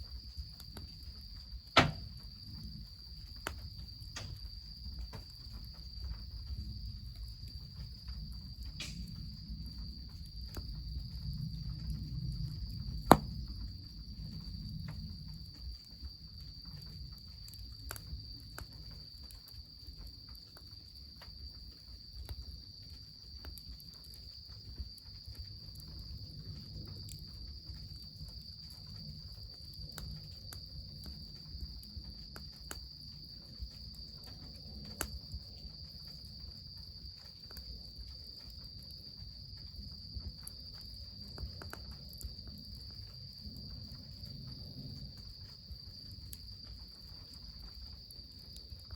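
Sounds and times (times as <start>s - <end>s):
insects chirring: 0.0s - 48.9s
wood fire crackling: 0.1s - 48.9s
sharp crack: 1.8s - 2.2s, 13.1s - 13.4s.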